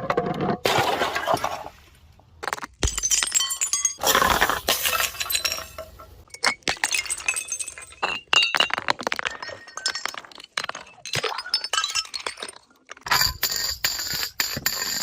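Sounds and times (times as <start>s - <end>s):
glass bottles breaking: 2.7s - 15.0s
broken glass clinking: 2.8s - 4.0s, 4.7s - 13.4s.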